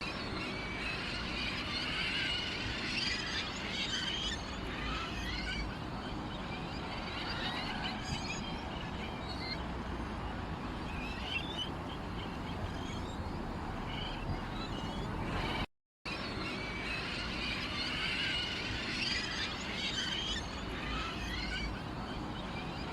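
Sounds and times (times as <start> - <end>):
small birds chirping: 10.7 - 15.7, 17.2 - 22.9.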